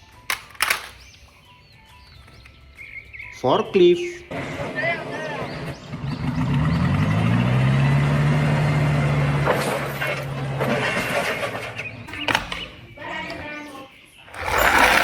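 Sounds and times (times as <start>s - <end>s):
clicks and rattles: 0.2s - 1.1s, 14.3s - 15.0s
forklift engine humming: 4.3s - 13.4s, 14.3s - 15.0s.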